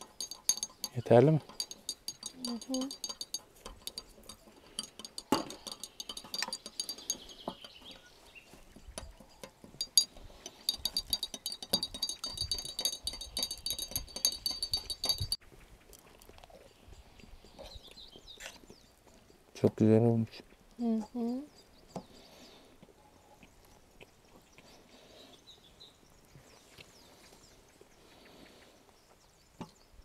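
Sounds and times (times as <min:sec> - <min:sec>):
cutlery and dishes clinking: 0:00.0 - 0:08.0, 0:08.8 - 0:15.4
rapid high ticking: 0:00.0 - 0:08.0, 0:08.8 - 0:15.4.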